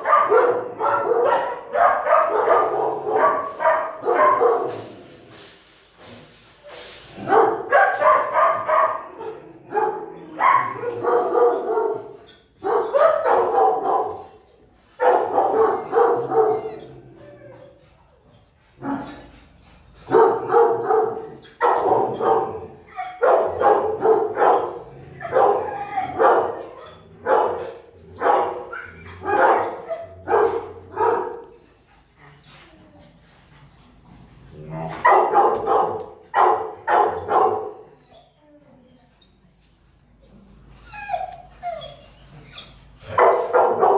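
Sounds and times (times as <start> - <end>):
dogs barking: 0.0 - 4.9, 7.2 - 14.4, 15.0 - 16.9, 20.0 - 31.6, 35.0 - 38.0, 43.0 - 43.9.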